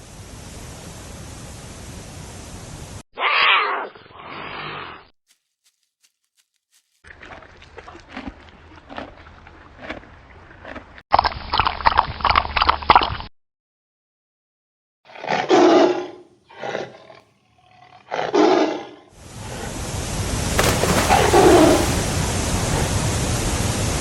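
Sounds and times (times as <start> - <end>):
big cat growls and roars: 15.1 - 19.1, 21.1 - 22.0.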